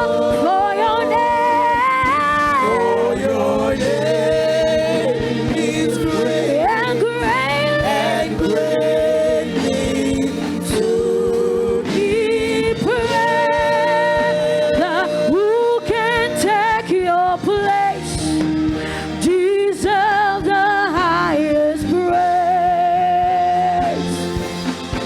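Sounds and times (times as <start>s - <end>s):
person singing with vibrato: 0.0s - 18.4s
sustained musical accompaniment: 0.0s - 25.0s.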